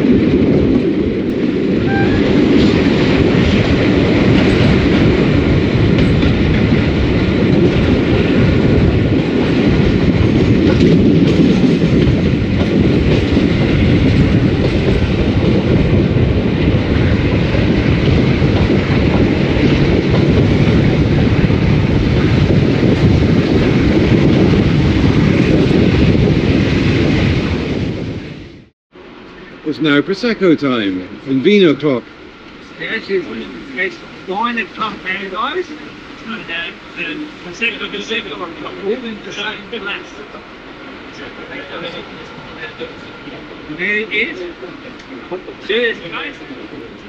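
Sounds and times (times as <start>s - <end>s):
wheels clattering on rails: 0.0s - 26.3s, 32.0s - 47.0s
locomotive engine rumble: 29.0s - 47.0s.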